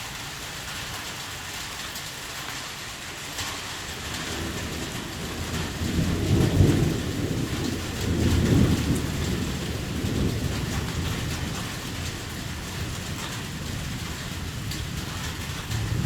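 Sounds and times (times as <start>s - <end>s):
heavy rain: 0.0s - 16.0s
thunder rumbling: 4.0s - 16.0s.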